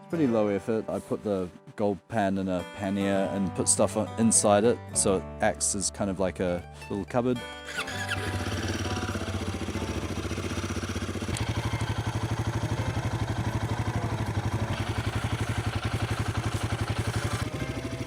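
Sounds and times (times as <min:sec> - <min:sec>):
motorcycle engine idling: 0:07.7 - 0:18.0.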